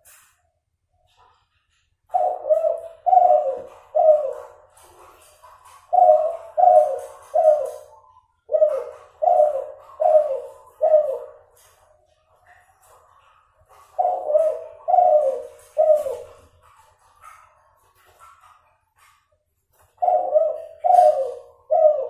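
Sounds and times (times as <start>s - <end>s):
dove cooing: 2.1s - 17.4s, 19.9s - 22.0s.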